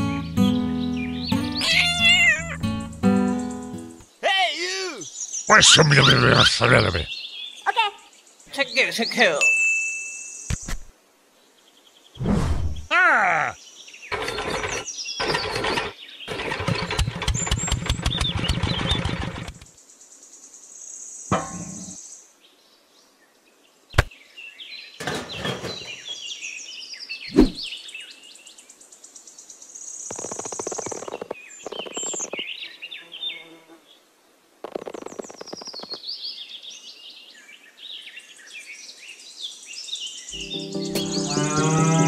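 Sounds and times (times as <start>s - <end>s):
birds chirping: 0.0s - 9.4s, 12.8s - 20.0s, 24.0s - 28.8s, 29.8s - 33.5s, 34.6s - 42.0s.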